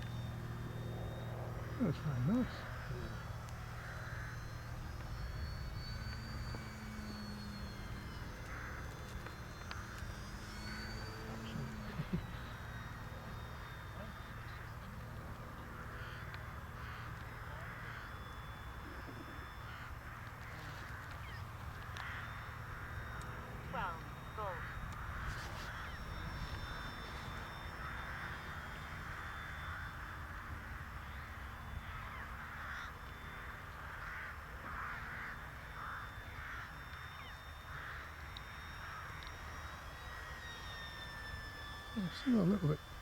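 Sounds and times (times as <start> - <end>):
model aircraft motor whine: 0.0 - 43.0
crows cawing: 1.8 - 5.4, 8.2 - 11.8, 15.5 - 40.7.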